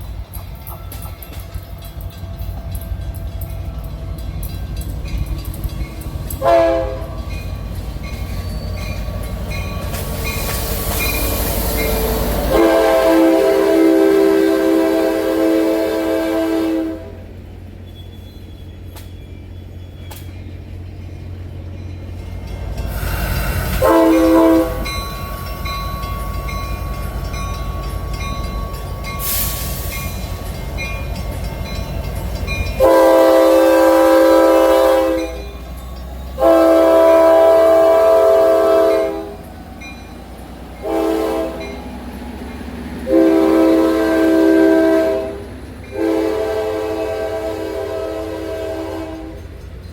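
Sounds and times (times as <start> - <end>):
train rumbling: 0.0 - 49.9
locomotive air horn: 6.4 - 7.3, 11.9 - 17.3, 23.6 - 25.0, 32.8 - 35.5, 36.4 - 39.4, 40.8 - 41.8, 43.0 - 49.5.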